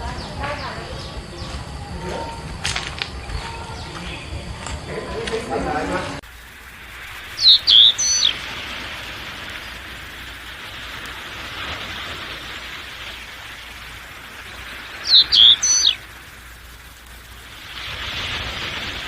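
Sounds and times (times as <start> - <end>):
steady background hiss: 0.0 - 19.0
bird calling with sliding notes: 7.2 - 10.0, 14.6 - 16.1.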